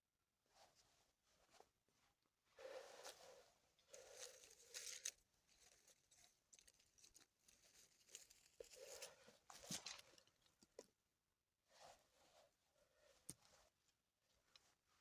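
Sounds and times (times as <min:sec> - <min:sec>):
faint rustling and crackling: 0:00.5 - 0:10.9.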